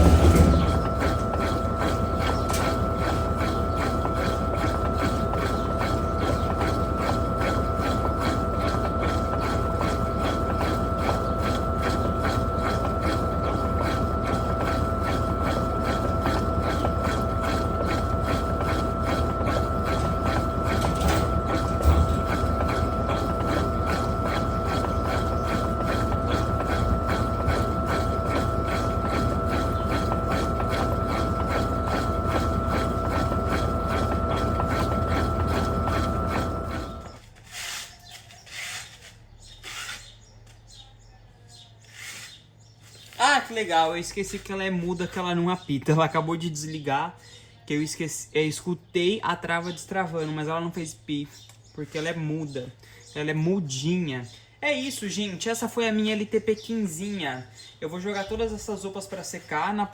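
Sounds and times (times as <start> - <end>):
washing machine spinning: 0.0 - 37.4.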